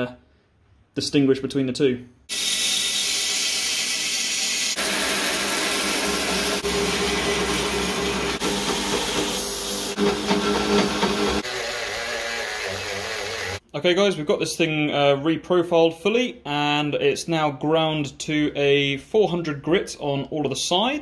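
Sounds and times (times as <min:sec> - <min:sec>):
belt grinder grinding steel: 0:02.3 - 0:13.6
rotary tool sanding drum grinding: 0:04.6 - 0:13.6.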